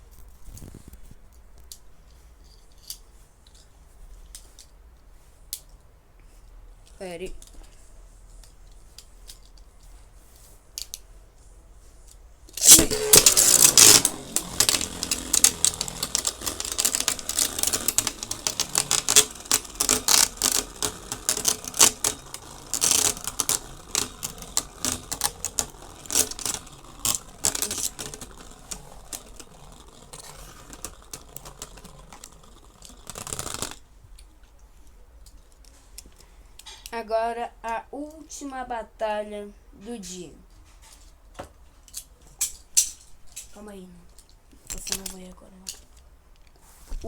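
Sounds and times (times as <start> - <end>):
spinning tops clashing: 12.6 - 33.8.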